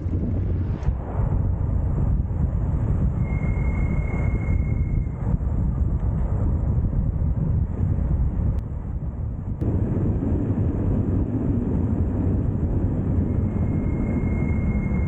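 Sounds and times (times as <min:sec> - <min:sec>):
wind buffeting microphone: 0:00.0 - 0:15.0
thin high whine: 0:03.2 - 0:05.2, 0:13.0 - 0:15.0.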